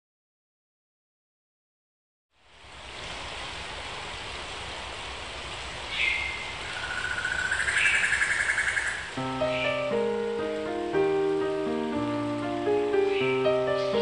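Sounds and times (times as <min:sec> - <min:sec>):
steady hiss: 0:02.4 - 0:14.0
birds chirping and trilling: 0:05.8 - 0:14.0
piano notes: 0:09.2 - 0:14.0.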